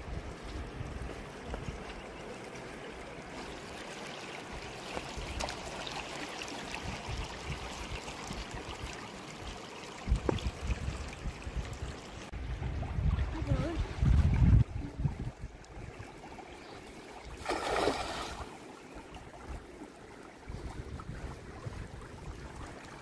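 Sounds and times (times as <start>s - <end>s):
wind buffeting microphone: 6.7s - 9.0s, 10.0s - 16.0s, 20.4s - 23.0s
river water rushing: 17.4s - 18.8s.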